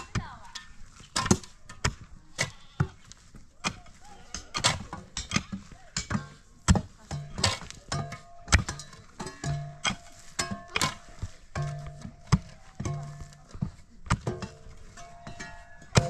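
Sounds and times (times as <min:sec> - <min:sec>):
sharp knocks and clatters: 0:04.4 - 0:16.0.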